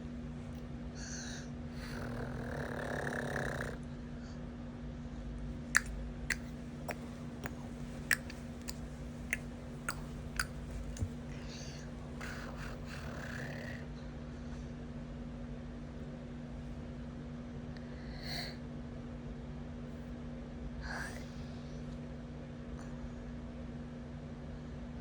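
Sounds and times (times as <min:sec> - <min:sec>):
steady low hum: 0:00.0 - 0:25.0
baby snoring: 0:01.0 - 0:03.8, 0:11.3 - 0:13.9.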